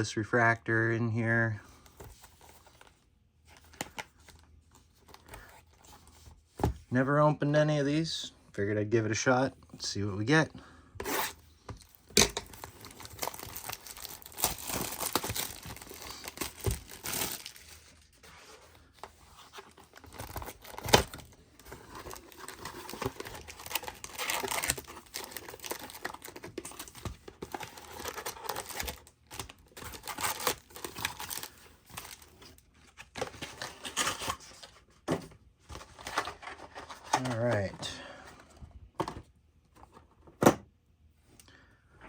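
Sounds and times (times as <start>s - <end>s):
plastic wrapping tearing and crinkling: 12.3s - 17.8s, 22.1s - 26.9s.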